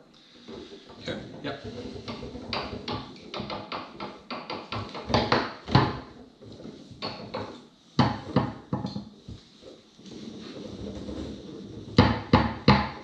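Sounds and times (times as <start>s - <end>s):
foosball table clacks and knocks: 0.4s - 9.1s, 11.8s - 13.0s.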